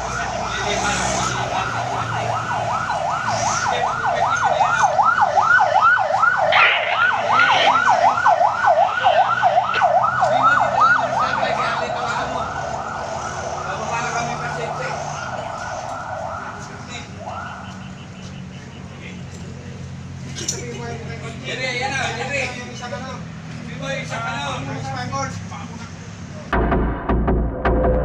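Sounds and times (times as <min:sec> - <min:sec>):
emergency siren yelping: 0:00.0 - 0:18.9.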